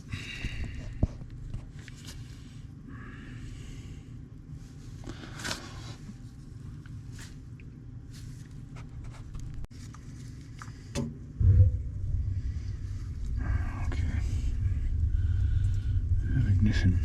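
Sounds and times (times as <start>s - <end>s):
gas burner rumbling: 10.7s - 17.0s.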